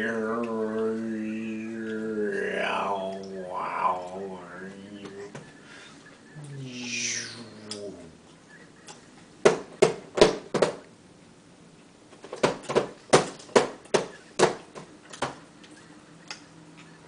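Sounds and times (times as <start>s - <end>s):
sharp knocks: 9.4s - 10.8s, 12.3s - 15.4s.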